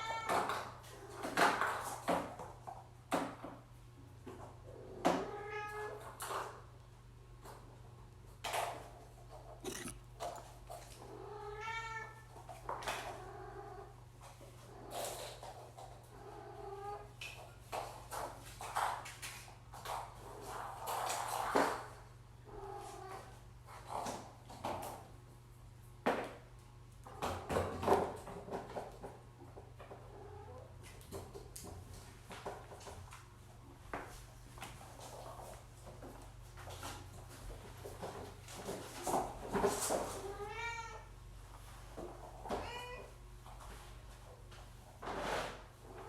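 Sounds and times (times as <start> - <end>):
cat meowing: 0.0 - 0.5, 11.2 - 12.2, 40.2 - 41.1, 42.5 - 43.1.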